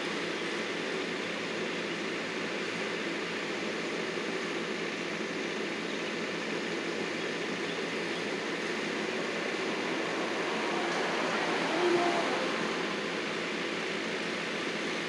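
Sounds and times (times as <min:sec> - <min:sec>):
heavy machinery running: 0:06.4 - 0:15.0.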